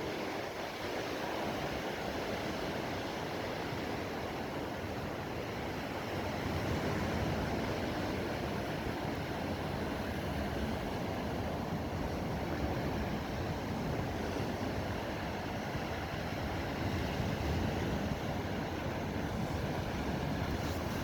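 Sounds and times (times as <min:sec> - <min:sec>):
ocean surf: 0:00.0 - 0:21.0
steady wind: 0:00.0 - 0:21.0.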